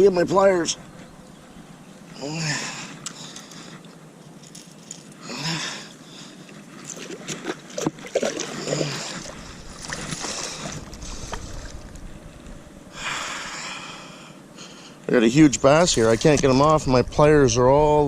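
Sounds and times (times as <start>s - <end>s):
man breathing heavily and grunting: 2.2s - 3.7s, 5.2s - 6.4s, 8.4s - 9.5s
wind rumbling on microphone: 8.8s - 13.6s, 15.3s - 18.0s.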